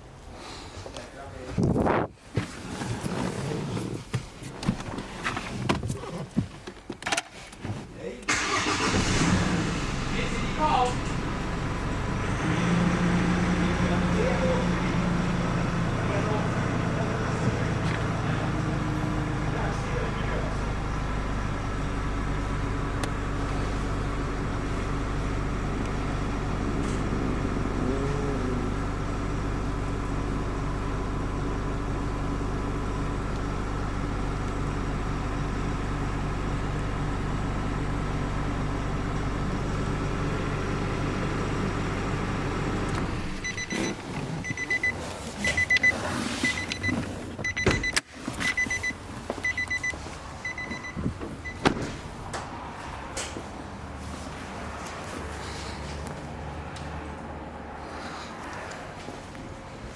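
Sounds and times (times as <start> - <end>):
car engine running: 8.3 - 56.3
electronic warning chime: 43.4 - 51.6
clicks and clunks of doors: 46.6 - 48.7, 50.7 - 53.5.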